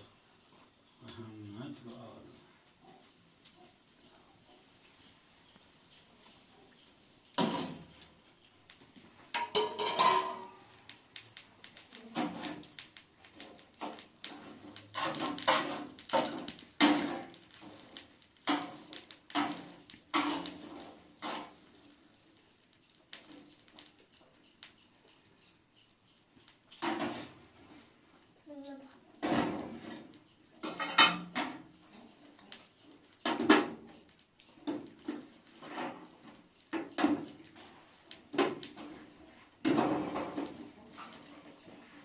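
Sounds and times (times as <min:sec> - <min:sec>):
dishes and pots clattering: 0:09.3 - 0:10.6, 0:15.0 - 0:17.4, 0:18.5 - 0:21.6, 0:30.6 - 0:31.7.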